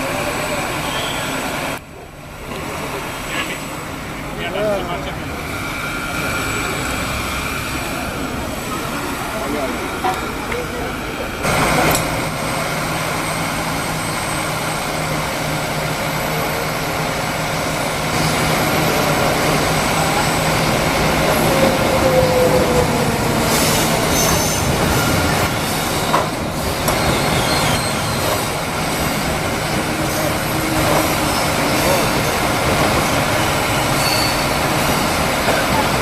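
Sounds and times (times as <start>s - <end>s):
train wagons rumbling: 0.0s - 36.0s
falling squeal: 0.7s - 1.6s, 13.2s - 15.0s, 20.1s - 26.1s, 26.9s - 28.7s, 33.6s - 35.2s.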